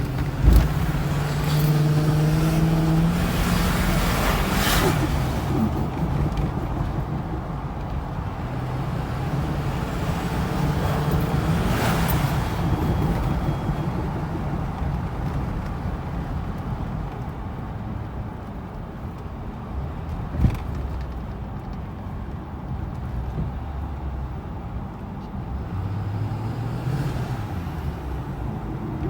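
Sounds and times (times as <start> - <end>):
diesel pickup engine running: 0.0 - 20.3.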